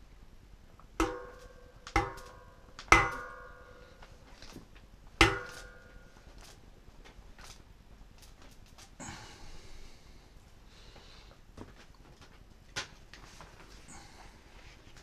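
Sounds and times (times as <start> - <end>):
hammer blows on metal: 1.0 - 4.0.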